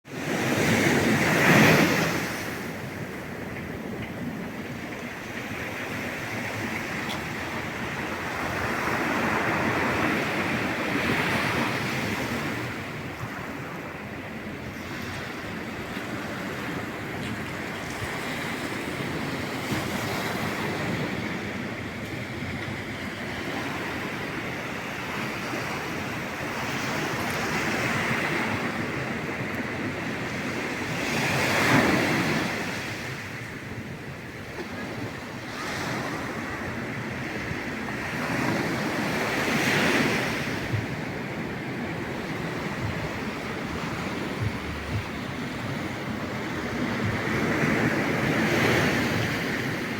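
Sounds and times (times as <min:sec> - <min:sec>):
waves breaking on shore: 0:00.1 - 0:49.9
wind buffeting microphone: 0:00.1 - 0:49.9.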